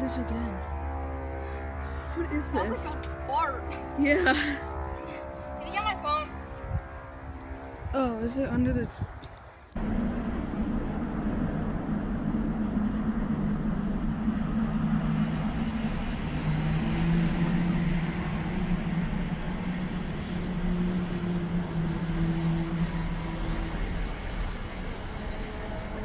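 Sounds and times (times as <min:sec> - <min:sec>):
low droning hum: 0:00.0 - 0:26.0
horn-like tones: 0:09.8 - 0:26.0.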